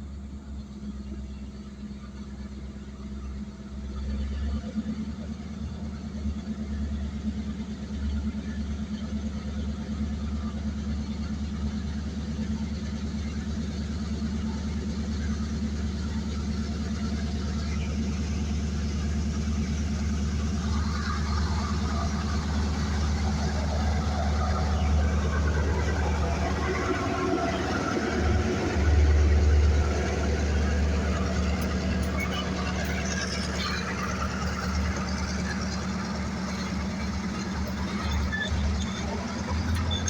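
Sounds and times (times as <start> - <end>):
engine droning: 0.0 - 40.0.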